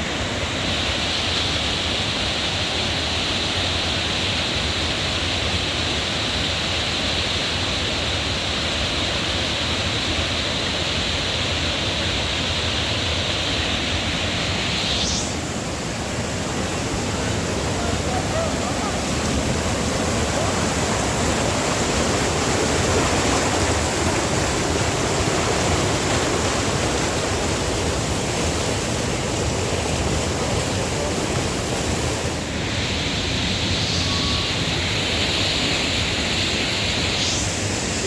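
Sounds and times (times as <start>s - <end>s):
waterfall rushing: 0.0s - 38.0s
bright hiss: 12.4s - 16.3s, 31.8s - 38.0s.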